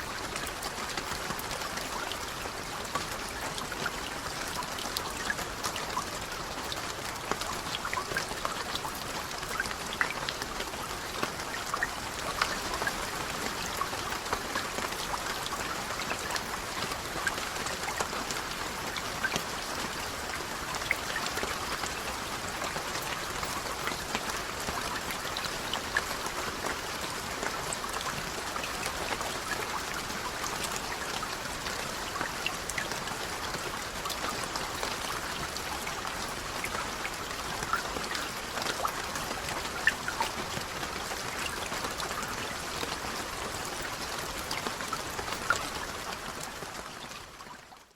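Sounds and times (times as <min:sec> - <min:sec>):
raindrops pattering on a surface: 0:00.0 - 0:47.9.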